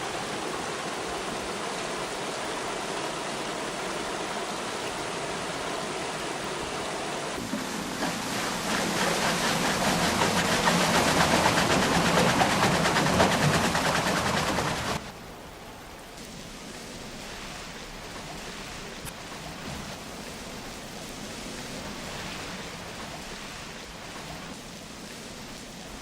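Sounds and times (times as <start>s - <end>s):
rushing water: 0.0s - 26.0s
rhythmic sawmill clatter: 7.4s - 15.0s.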